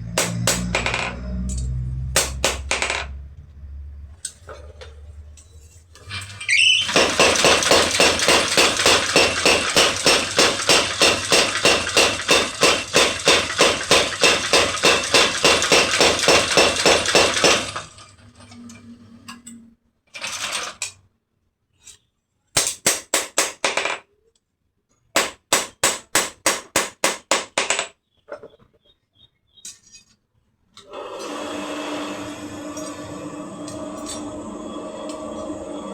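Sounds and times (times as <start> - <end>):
hammer striking metal on anvil: 0.1 - 2.8.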